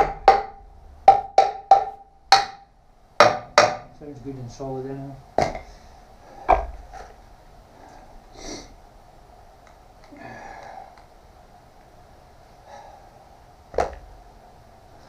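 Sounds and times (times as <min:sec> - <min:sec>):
sharp knocks on metal workpiece: 0:00.0 - 0:03.9.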